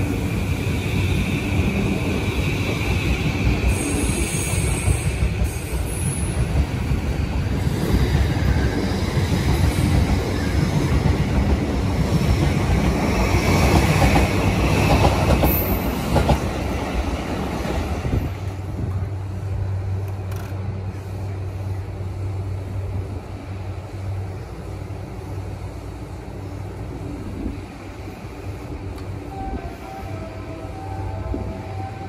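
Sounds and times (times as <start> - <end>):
electric train running past: 0.0 - 32.0
train wheels squealing: 0.5 - 6.9.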